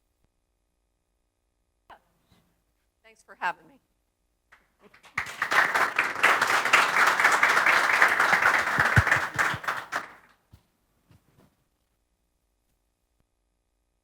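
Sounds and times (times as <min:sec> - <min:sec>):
audience applauding: 0:04.9 - 0:10.3.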